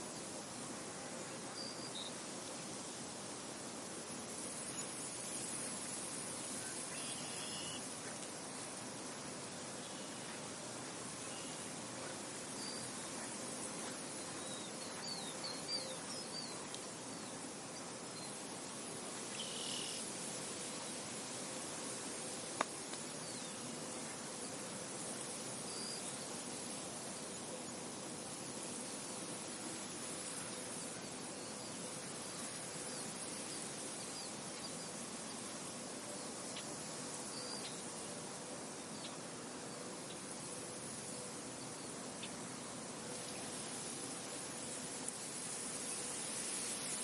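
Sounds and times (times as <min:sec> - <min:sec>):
faint high bird chirps: 0:19.4 - 0:20.0.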